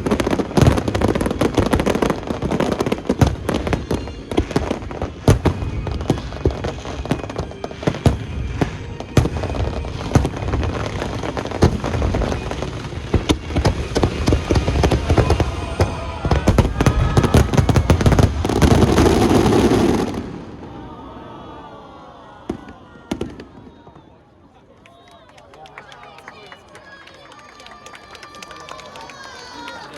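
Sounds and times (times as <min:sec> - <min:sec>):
fireworks bangs and crackles: 0:00.0 - 0:20.9, 0:22.5 - 0:24.3
music playing: 0:03.5 - 0:15.8.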